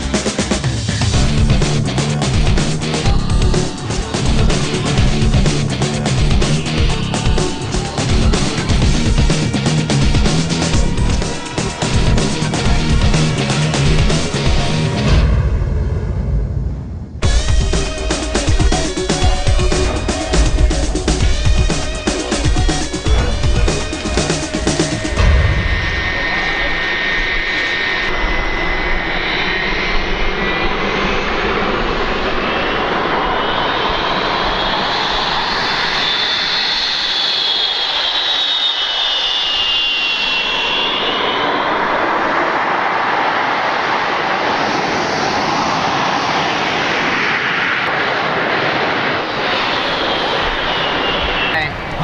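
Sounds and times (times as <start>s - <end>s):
jet engine high whine: 0.0s - 52.0s
jet engine roar: 0.0s - 52.0s.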